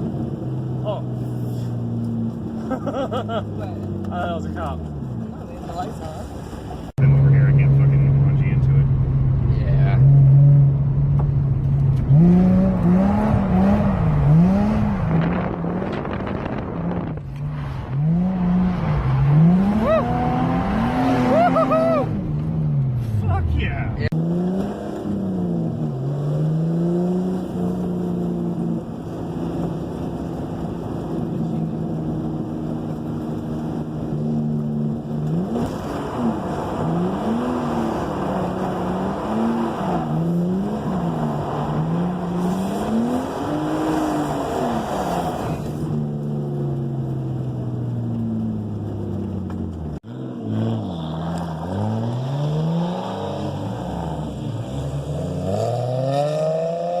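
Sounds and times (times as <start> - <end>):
car engine revving hard: 12.1 - 17.1, 33.0 - 45.9, 50.0 - 57.0.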